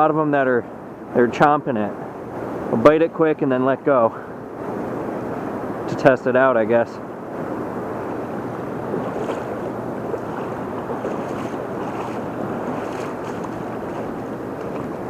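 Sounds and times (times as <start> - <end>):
river water rushing: 7.0 - 15.0.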